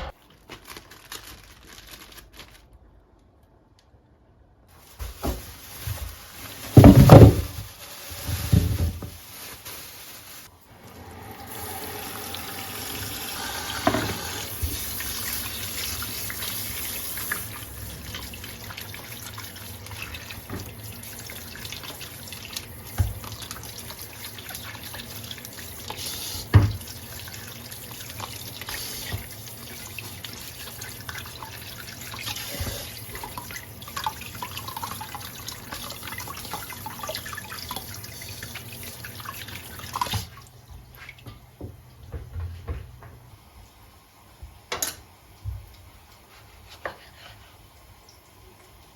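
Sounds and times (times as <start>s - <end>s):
items knocking against sink: 5.0s - 9.2s, 41.2s - 43.2s
tap water running into sink: 5.0s - 9.2s, 10.8s - 43.2s.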